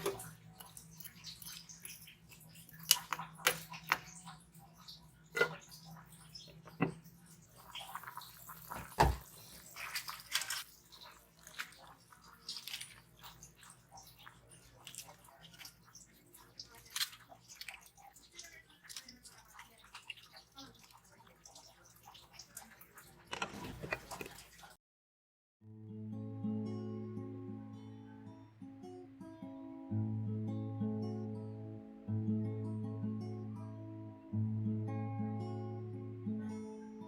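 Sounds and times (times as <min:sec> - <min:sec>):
liquid sloshing and dripping: 0:00.0 - 0:24.8.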